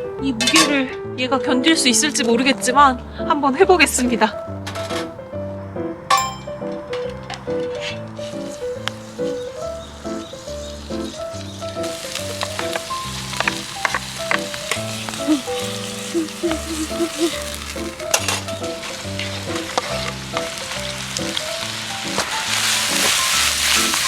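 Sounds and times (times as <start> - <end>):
background music: 0.0 - 24.0
food sizzling in a pan: 8.1 - 24.0.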